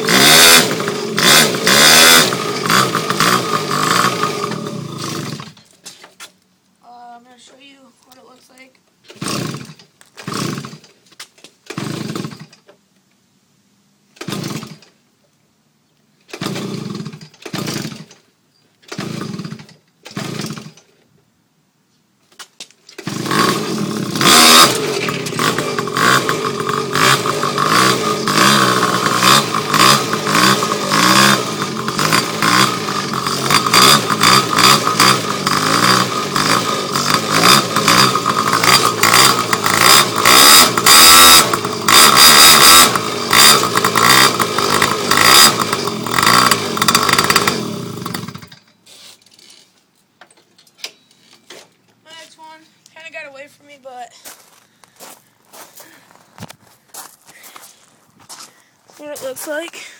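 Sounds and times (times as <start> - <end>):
small engine pull-start cranking: 0.0 - 5.7, 9.0 - 11.0, 11.6 - 12.7, 14.2 - 15.0, 16.2 - 21.0, 22.9 - 49.8
small two-stroke engine running: 0.0 - 5.7, 9.1 - 10.9, 11.7 - 12.6, 14.2 - 14.9, 16.3 - 18.2, 18.9 - 20.8, 23.0 - 48.7.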